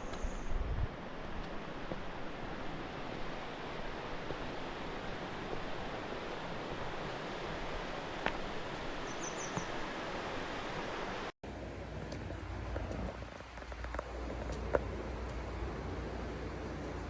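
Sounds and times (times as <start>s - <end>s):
river water rushing: 1.0s - 17.0s
low rumble with small clicks: 11.5s - 17.0s.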